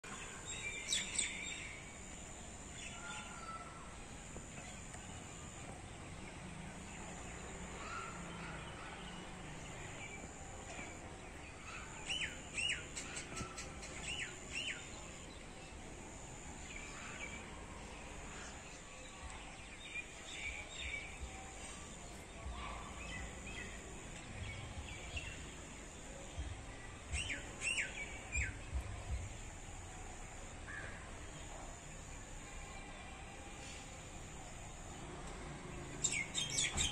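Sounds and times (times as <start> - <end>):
background hiss: 0.0 - 36.9
birds chirping: 35.8 - 36.9.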